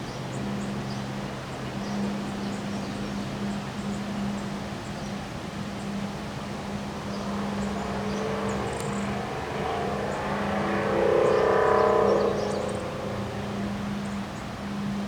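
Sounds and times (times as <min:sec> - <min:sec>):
motor vehicle passing: 0:06.2 - 0:15.0.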